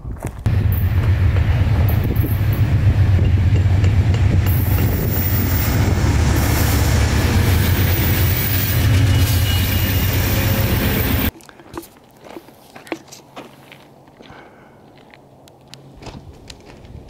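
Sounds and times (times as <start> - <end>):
train rumbling on rails: 0.4 - 11.3
diesel locomotive engine drone: 0.5 - 11.3.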